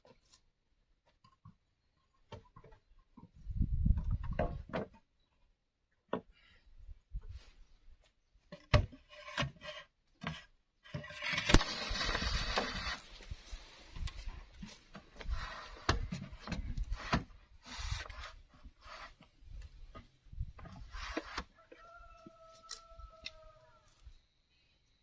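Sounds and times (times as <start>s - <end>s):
bamboo rasping scrape: 11.0s - 13.2s, 15.2s - 16.1s, 16.8s - 19.4s, 20.8s - 21.5s.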